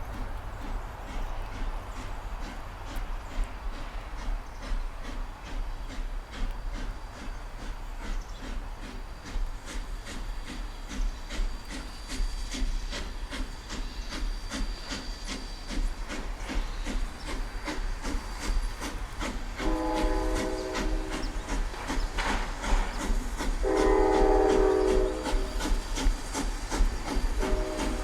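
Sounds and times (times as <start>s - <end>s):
steam locomotive exhaust chuffs: 0.0s - 28.0s
steam whistle blasts: 19.6s - 21.4s, 23.6s - 25.6s, 27.2s - 28.0s.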